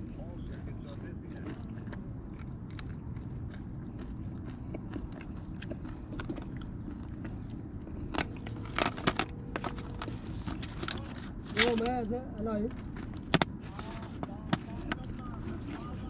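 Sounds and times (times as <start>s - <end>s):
person chewing crispy fried fish: 0.0s - 11.5s
low background rumble: 0.0s - 16.0s.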